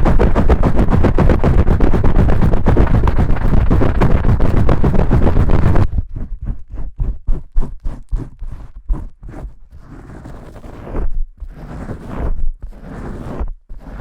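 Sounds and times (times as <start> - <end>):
fingers scrubbing soapy lather: 0.0 - 5.9.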